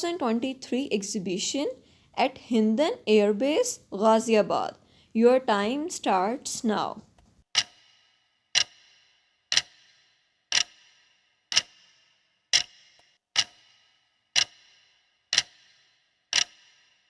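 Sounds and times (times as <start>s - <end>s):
clock ticking: 0.0s - 11.9s, 12.5s - 17.0s.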